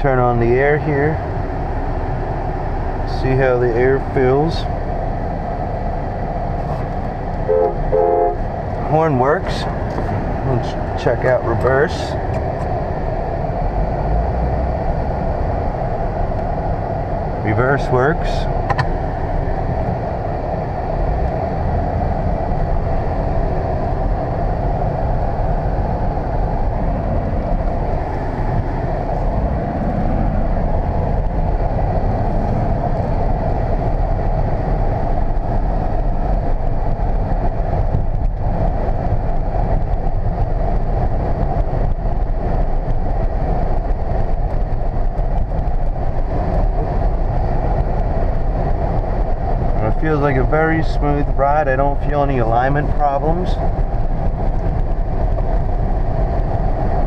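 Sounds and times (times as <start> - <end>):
air conditioning blowing: 0.0 - 57.0
car engine running: 0.0 - 57.0
road noise: 0.0 - 57.0.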